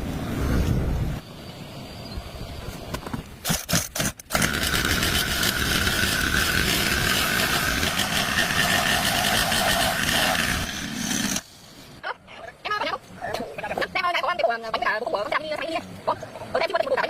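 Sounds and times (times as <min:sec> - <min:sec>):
small scooter engine whining: 0:04.4 - 0:11.4.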